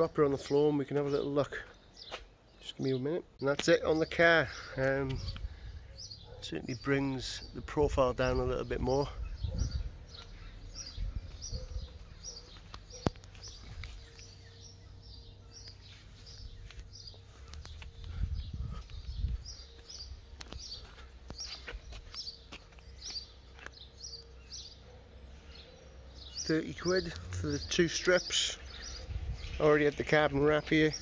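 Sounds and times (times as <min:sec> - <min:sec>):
small bird chirping: 0:09.2 - 0:29.7.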